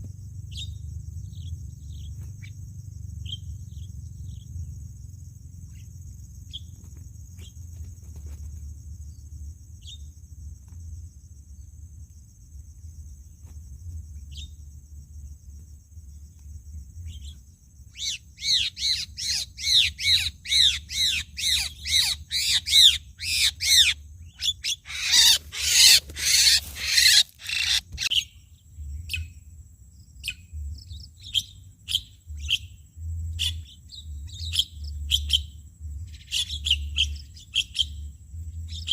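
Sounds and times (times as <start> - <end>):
high insect drone: 0.0 - 38.9
starlings calling: 17.1 - 28.4.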